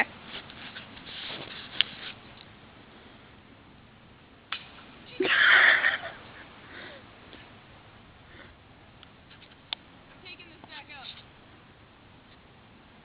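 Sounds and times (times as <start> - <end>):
person exhaling breathily: 6.6 - 7.1.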